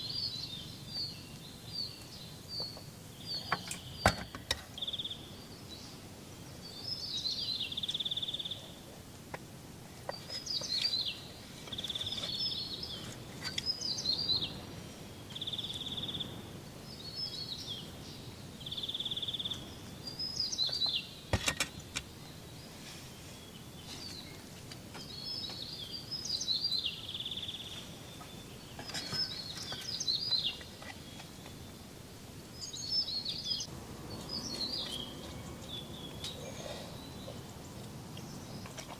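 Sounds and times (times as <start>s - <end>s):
bird singing: 0.0s - 8.8s, 10.0s - 31.9s, 32.5s - 38.9s
faint steady hiss: 0.0s - 38.9s.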